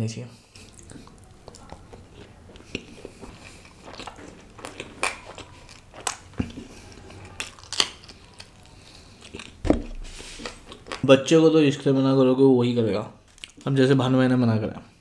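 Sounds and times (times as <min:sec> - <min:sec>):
chewing and wet mouth smacks: 0:00.6 - 0:09.7, 0:13.2 - 0:13.7.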